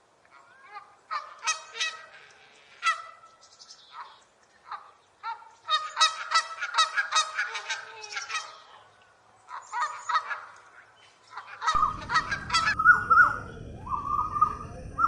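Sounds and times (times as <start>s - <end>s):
geese honking: 0.7s - 3.3s, 3.9s - 8.8s, 11.3s - 15.0s.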